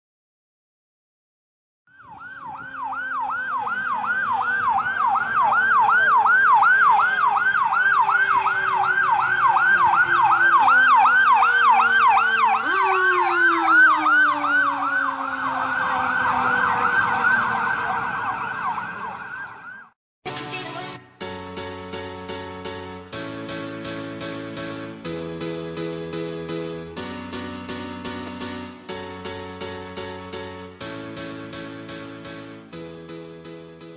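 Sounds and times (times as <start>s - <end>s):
electronic siren yelping: 1.9s - 19.9s
mechanical siren wail: 1.9s - 20.0s.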